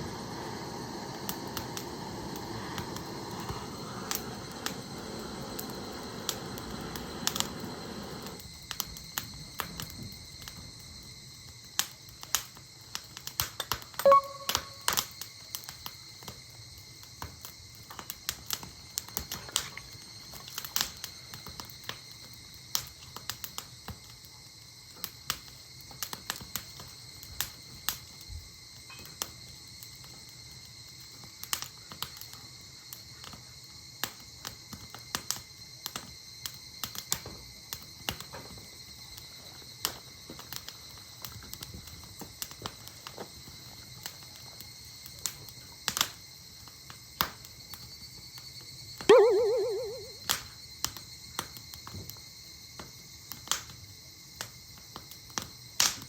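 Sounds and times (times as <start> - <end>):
campfire crackling and popping: 0.0 - 16.4
faint steady high tone: 14.0 - 15.0, 49.1 - 50.2.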